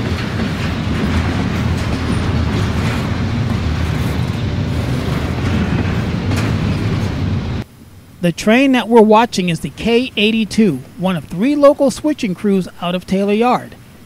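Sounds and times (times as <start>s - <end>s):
freight train wheels rumbling: 0.0s - 7.7s.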